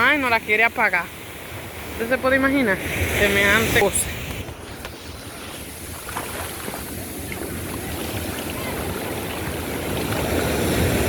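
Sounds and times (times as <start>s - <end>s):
surf washing on shore: 0.0s - 11.0s
wind rumble on microphone: 1.5s - 11.0s.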